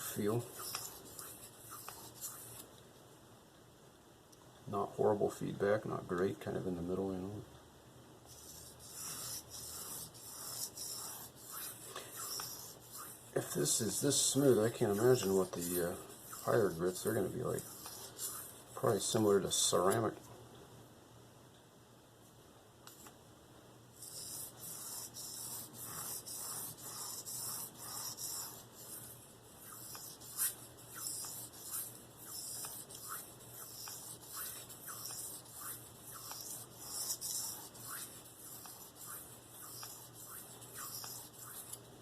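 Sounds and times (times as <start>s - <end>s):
knife blade rasping on sharpening stone: 29.6s - 41.8s.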